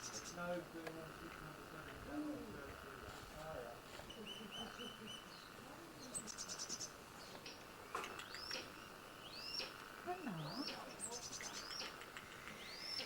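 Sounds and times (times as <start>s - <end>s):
birds chirping and singing: 0.0s - 0.6s, 4.0s - 13.0s.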